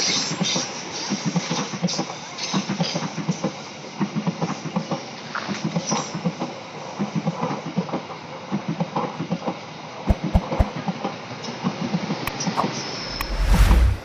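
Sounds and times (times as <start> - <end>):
train wheels clattering over rail joints: 0.0 - 10.0
heavy thumps: 10.1 - 10.7.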